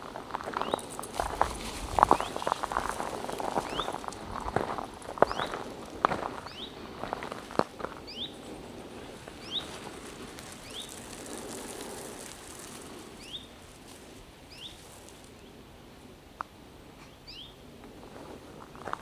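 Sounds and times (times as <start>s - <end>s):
soft rustle of movement: 0.3s - 15.4s.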